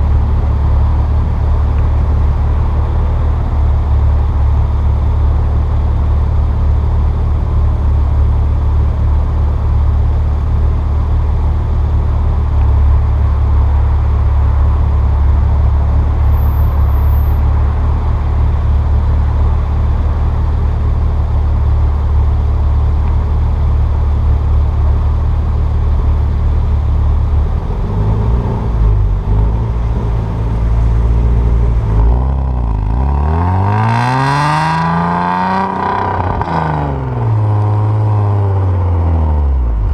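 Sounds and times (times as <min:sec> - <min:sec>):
raspy car exhaust revving: 0:12.0 - 0:38.2.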